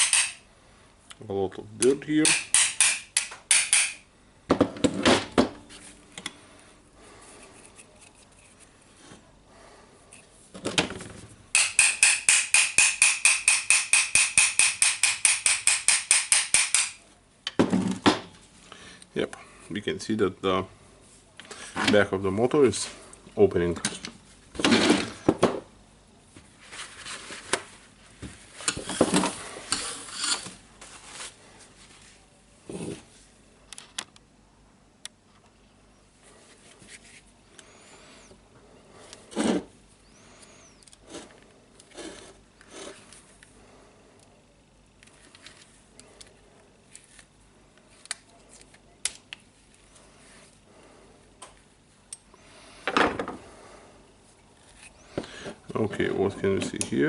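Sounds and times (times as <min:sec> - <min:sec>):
small parts clicking and scraping: 0:00.0 - 0:00.4.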